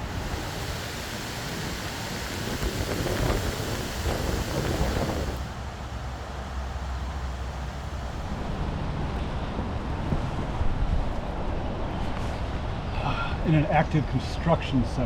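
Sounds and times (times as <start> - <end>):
wind rumbling on microphone: 0.0 - 6.3, 7.6 - 13.4
rain hiss: 0.0 - 8.5.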